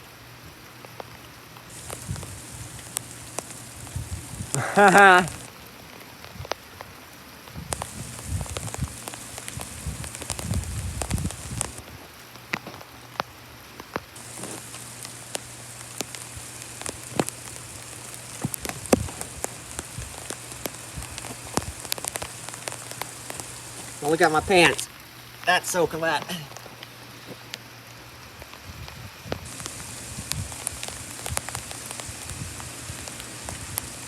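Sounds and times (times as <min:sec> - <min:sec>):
rain falling: 0:00.0 - 0:34.0
raindrops tapping: 0:00.8 - 0:28.6, 0:29.3 - 0:34.0
thunder rumble: 0:07.7 - 0:11.8.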